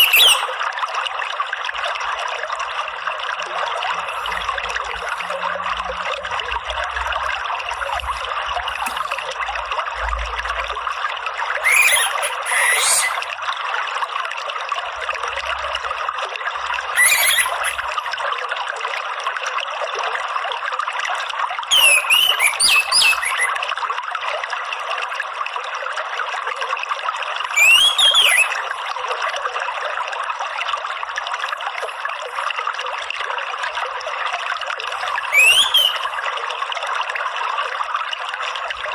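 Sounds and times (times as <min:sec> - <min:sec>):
thrush bird calls: 0:00.0 - 0:00.5, 0:11.6 - 0:13.3, 0:17.0 - 0:17.9, 0:21.7 - 0:23.6, 0:27.6 - 0:28.7, 0:35.1 - 0:36.1
trickle of running water: 0:00.0 - 0:38.9.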